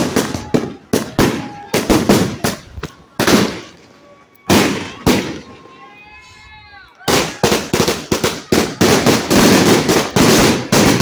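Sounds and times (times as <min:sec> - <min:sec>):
firework shots exploding: 0:00.0 - 0:03.8, 0:04.5 - 0:05.5, 0:07.1 - 0:11.0.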